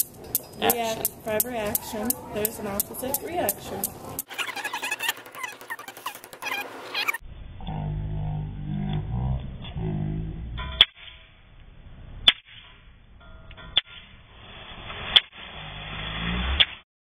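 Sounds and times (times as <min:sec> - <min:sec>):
steel balls clacking: 0:00.0 - 0:07.2
low background murmur: 0:00.2 - 0:06.9.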